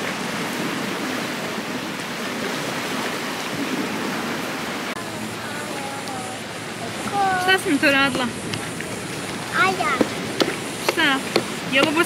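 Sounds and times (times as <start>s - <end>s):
sea surf rushing on shore: 0.0s - 12.0s.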